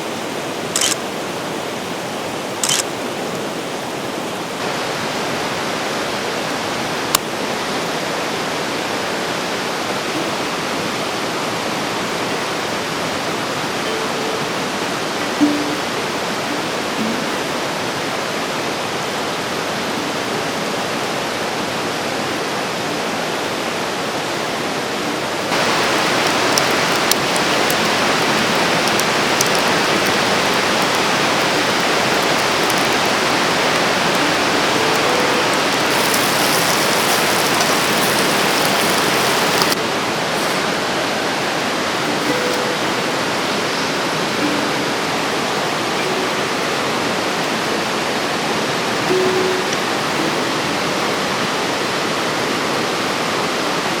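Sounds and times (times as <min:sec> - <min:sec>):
river rushing over rocks: 0:00.0 - 0:49.1.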